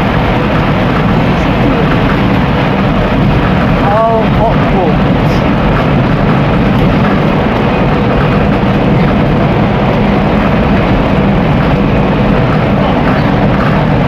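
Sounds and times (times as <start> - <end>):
bus engine running: 0.0 - 14.0
road and body noise: 0.0 - 14.0.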